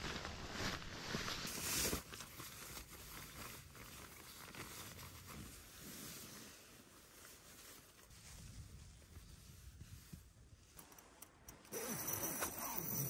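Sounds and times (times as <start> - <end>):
jacket fabric rustling: 0.0 - 10.4.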